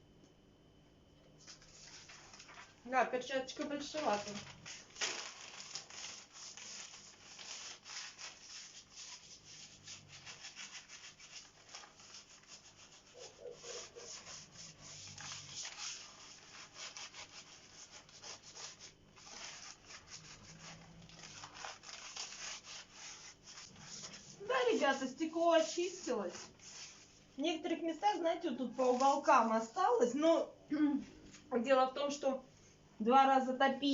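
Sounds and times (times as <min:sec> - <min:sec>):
newspaper rubbing on glass: 0:01.5 - 0:02.6, 0:03.5 - 0:27.2, 0:28.0 - 0:30.0.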